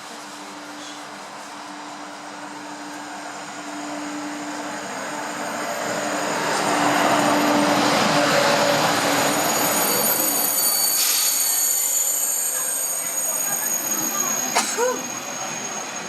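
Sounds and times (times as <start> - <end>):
train running on track: 0.0 - 16.0
wheel squeals: 8.5 - 16.0.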